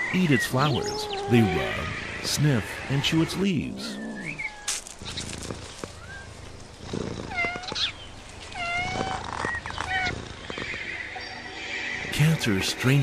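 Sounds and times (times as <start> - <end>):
cat meowing: 0.6 - 2.0.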